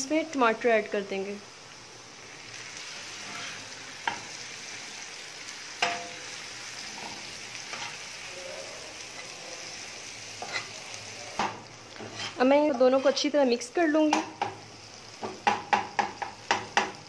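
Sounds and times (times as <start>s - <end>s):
onions and tomatoes sizzling: 0.0s - 17.0s
metal spatula scraping a griddle: 2.8s - 4.4s, 5.8s - 8.2s, 10.3s - 10.9s, 12.0s - 13.4s.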